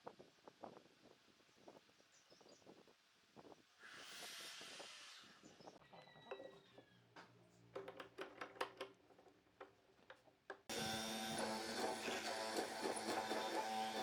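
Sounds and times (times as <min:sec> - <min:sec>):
music: 0:10.7 - 0:14.0.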